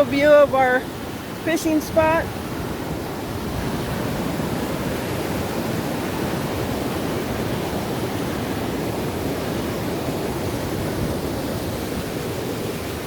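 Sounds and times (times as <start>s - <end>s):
water rushing through a channel: 0.0s - 13.0s.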